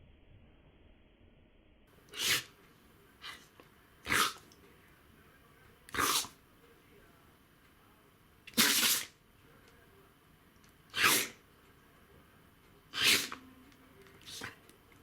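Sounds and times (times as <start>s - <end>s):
dog sneezing: 2.1s - 2.6s, 3.2s - 4.5s, 5.9s - 6.4s, 8.5s - 9.2s, 10.9s - 11.4s, 12.9s - 13.4s, 14.2s - 14.6s.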